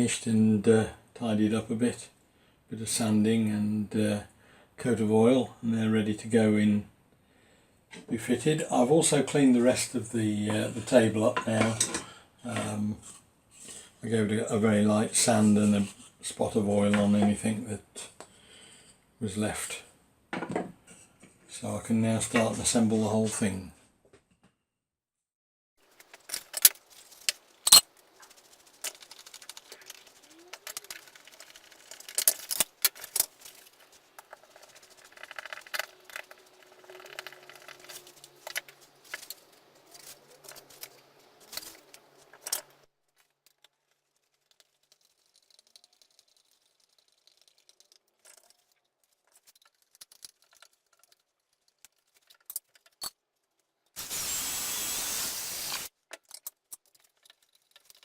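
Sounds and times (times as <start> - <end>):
wooden parts clicking and knocking: 25.9 - 42.8, 43.5 - 53.2, 56.1 - 58.0
burst of steady noise: 54.0 - 55.9.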